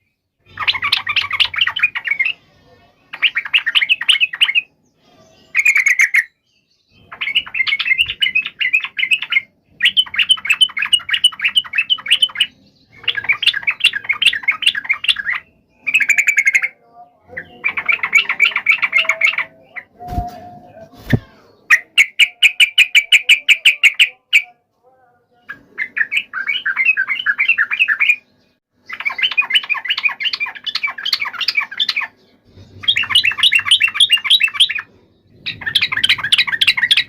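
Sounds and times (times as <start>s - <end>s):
bulbuls bubbling chatter: 7.0s - 24.6s.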